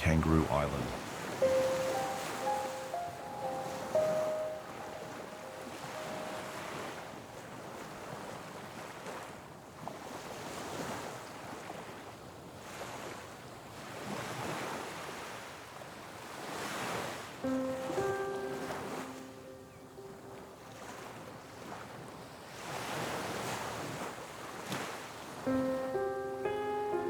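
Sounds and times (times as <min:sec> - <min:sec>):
ocean surf washing on shore: 0:00.0 - 0:27.0
music notes: 0:01.4 - 0:06.6, 0:25.5 - 0:27.0.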